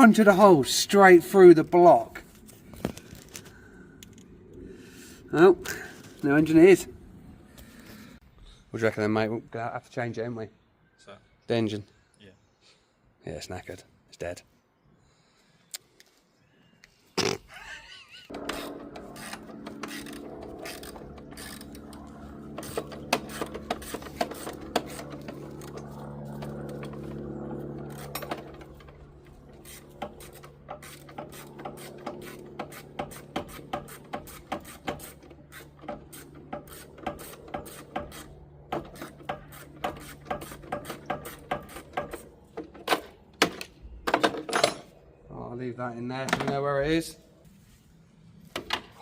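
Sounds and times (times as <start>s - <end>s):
steady hum: 18.3s - 44.0s
ratchet spanner clicking: 29.6s - 42.2s.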